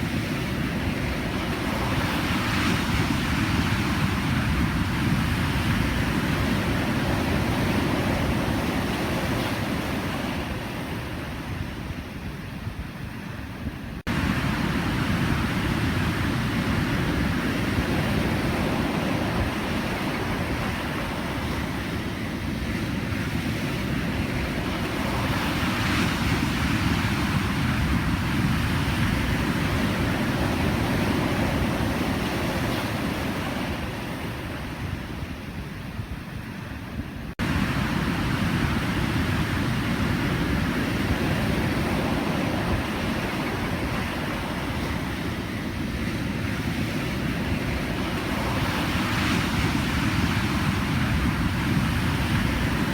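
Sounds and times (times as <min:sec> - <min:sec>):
surf waves breaking: 0:14.1 - 0:52.9.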